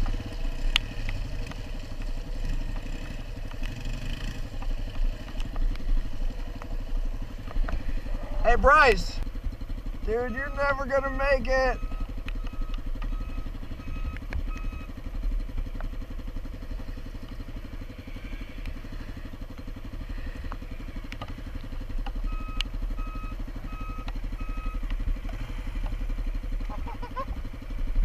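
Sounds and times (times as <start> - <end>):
motorcycle engine idling: 0.0 - 28.0
short electronic beeps: 10.3 - 11.0, 11.6 - 14.9, 22.2 - 24.8.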